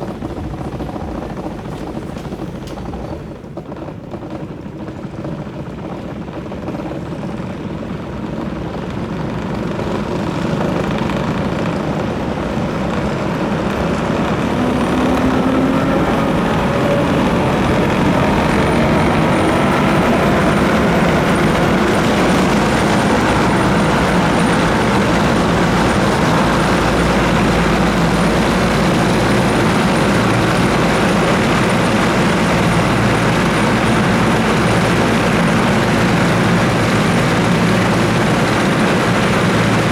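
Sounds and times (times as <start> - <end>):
tram wheels running on rails: 0.0 - 39.9.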